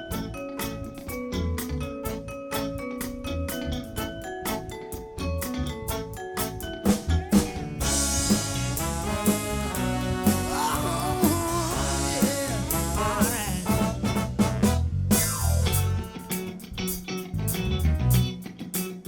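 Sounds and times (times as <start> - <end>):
wavering lead melody: 0.0 - 17.0
live band playing upbeat song: 0.0 - 19.0
drum striking: 6.9 - 16.2.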